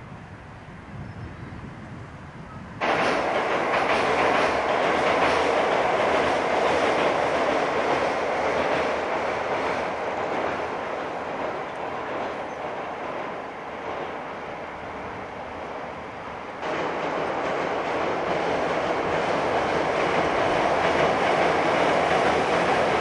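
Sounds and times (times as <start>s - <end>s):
train wheels clattering over rail joints: 2.8s - 14.4s, 16.6s - 23.0s.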